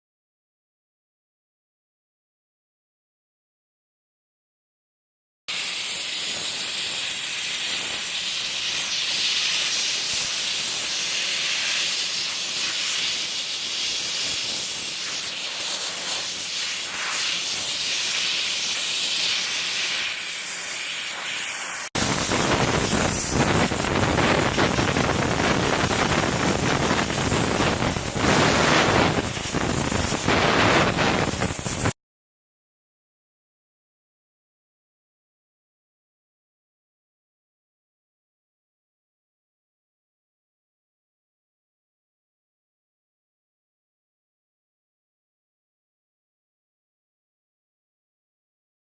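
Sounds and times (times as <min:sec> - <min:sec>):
water sprayer hissing: 0:05.5 - 0:32.0.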